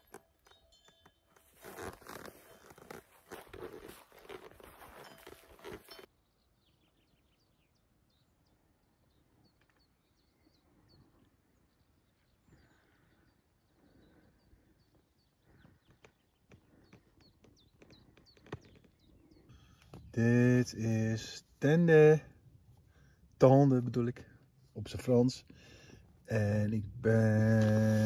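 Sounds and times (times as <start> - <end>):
faint bird chirps: 6.2 - 20.2.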